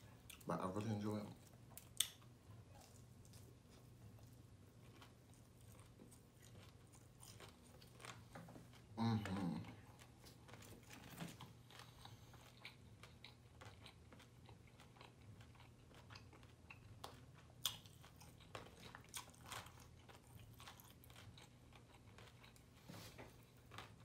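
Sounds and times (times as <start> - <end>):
person chewing crunchy food: 1.3 - 24.0.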